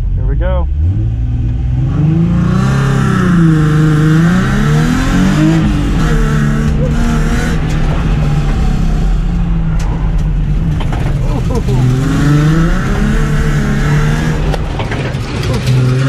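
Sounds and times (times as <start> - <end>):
race car engine revving: 0.0 - 16.0.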